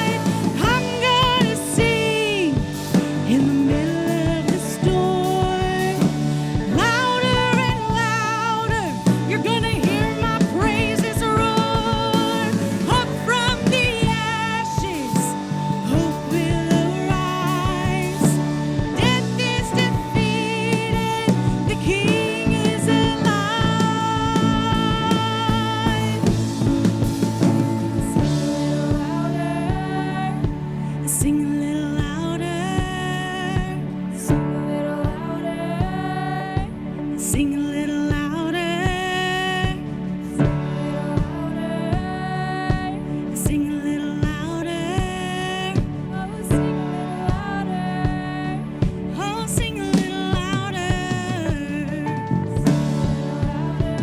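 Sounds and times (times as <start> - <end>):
drum beat: 0.0 - 34.5, 48.8 - 54.0
guitar: 0.0 - 54.0
keyboard: 0.0 - 54.0
person singing with vibrato: 0.0 - 54.0.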